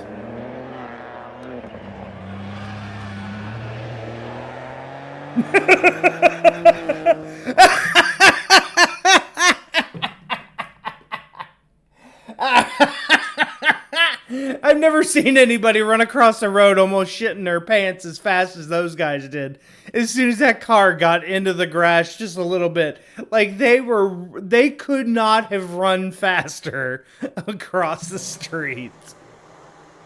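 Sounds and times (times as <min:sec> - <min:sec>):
rally car engine running: 0:00.0 - 0:08.2, 0:27.9 - 0:30.0
man laughing hard: 0:05.4 - 0:11.5, 0:12.1 - 0:14.6.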